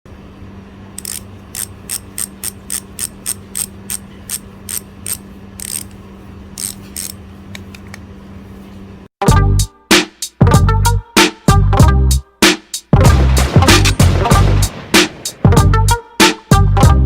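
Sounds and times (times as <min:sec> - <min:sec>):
bicycle freehub clicking: 0:01.0 - 0:06.0, 0:06.6 - 0:07.7.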